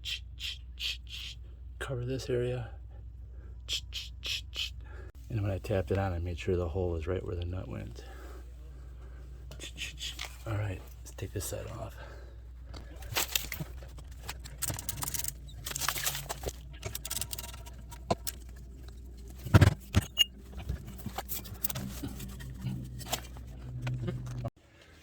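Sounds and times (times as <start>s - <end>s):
low steady hum: 0.0s - 25.0s
metal tools clinking and rattling: 12.8s - 23.4s.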